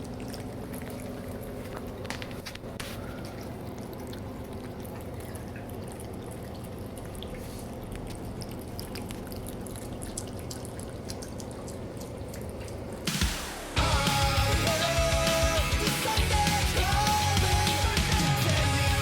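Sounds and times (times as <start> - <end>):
cat eating with wet mouth clicks: 0.0 - 13.0.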